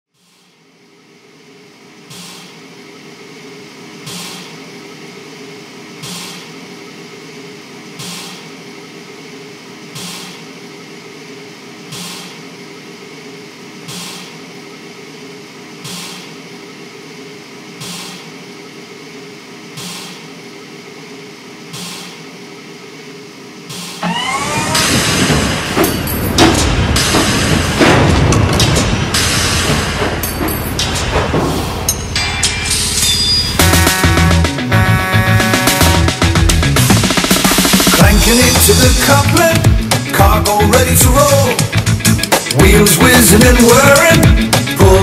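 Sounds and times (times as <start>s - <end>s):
mechanical hum: 0.1s - 45.0s
soft hissing puff: 21.6s - 22.3s
loud music: 24.0s - 45.0s.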